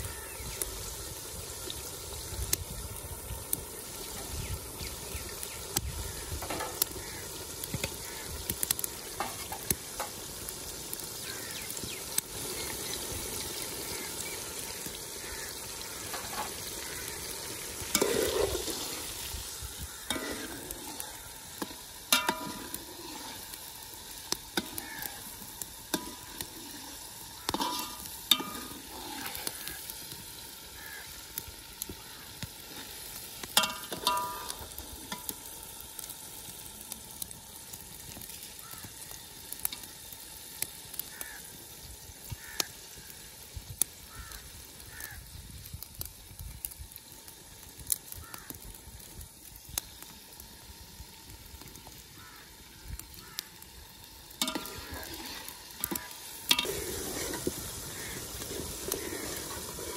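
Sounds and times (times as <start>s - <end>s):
vegetables sizzling in a pot: 0.0s - 59.9s
spoon scraping a pot: 17.8s - 19.0s, 54.4s - 59.7s.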